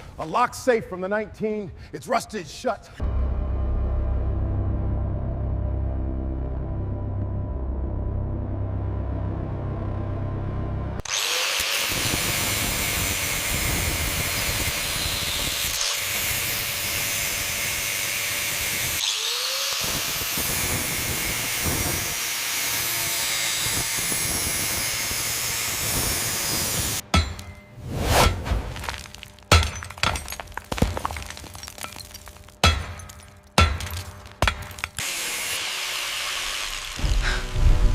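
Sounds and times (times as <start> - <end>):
power tool cutting metal: 11.0 - 27.6, 34.8 - 37.6.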